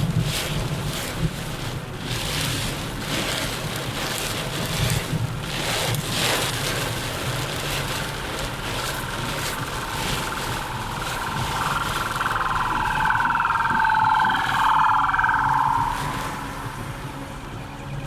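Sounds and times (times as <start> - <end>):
heavy rain on car: 0.0 - 17.1
wet tyre noise: 0.0 - 18.0
steady whine: 7.2 - 18.0.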